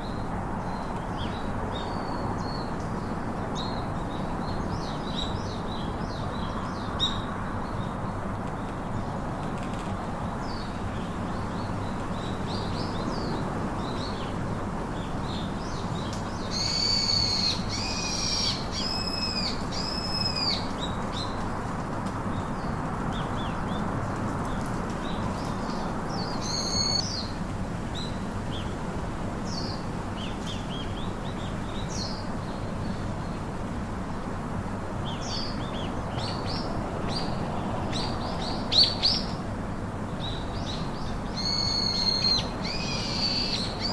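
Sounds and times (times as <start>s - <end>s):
steady background hiss: 0.0s - 43.9s
birds chirping and calling: 15.3s - 21.4s, 25.1s - 27.3s, 40.2s - 43.9s.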